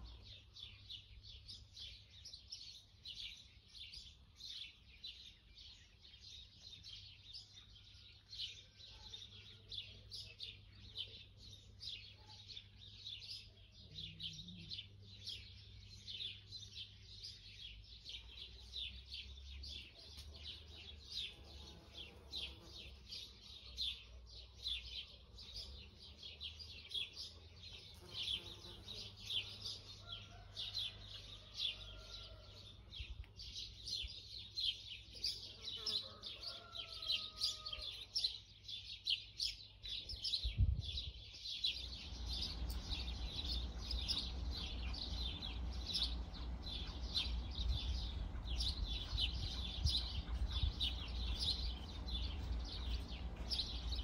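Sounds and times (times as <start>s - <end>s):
small birds chirping: 0.0s - 54.0s
faint low rumble: 41.8s - 54.0s.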